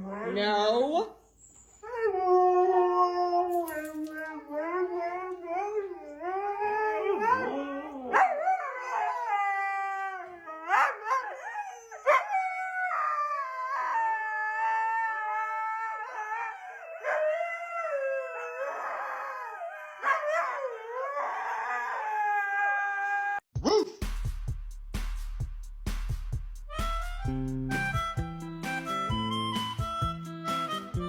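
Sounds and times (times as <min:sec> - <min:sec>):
dog howling: 0:01.8 - 0:23.4.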